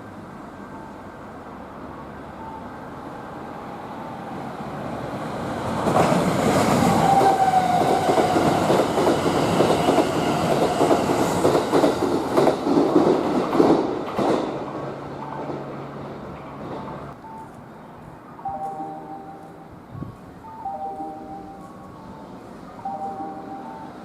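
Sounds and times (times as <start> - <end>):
electric train passing: 0.0 - 24.0.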